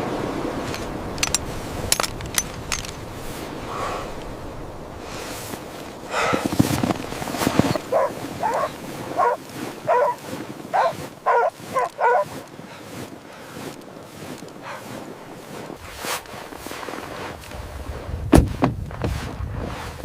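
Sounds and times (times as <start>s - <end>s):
rustling and knocks: 0.6s - 3.1s, 6.3s - 9.4s
dog barking: 7.8s - 12.4s.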